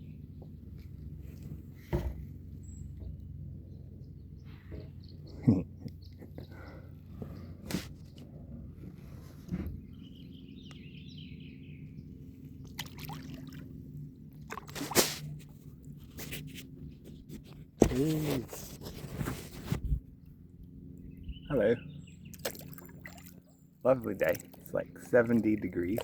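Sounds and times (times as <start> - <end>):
bird notes: 21.0 - 22.4
water dripping off paddle: 24.0 - 26.0.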